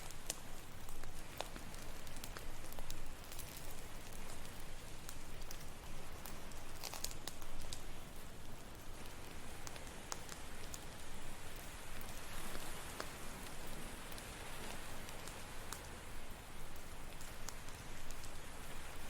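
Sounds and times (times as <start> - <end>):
campfire crackling: 0.0 - 19.0
ocean surf hiss: 7.8 - 19.0.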